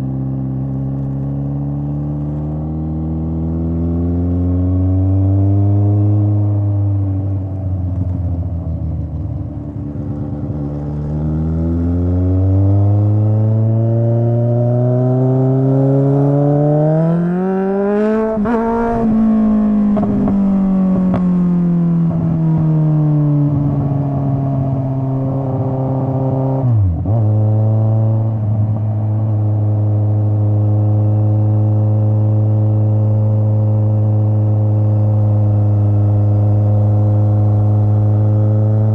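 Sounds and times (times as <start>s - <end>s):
motorcycle engine revving: 7.9s - 38.9s.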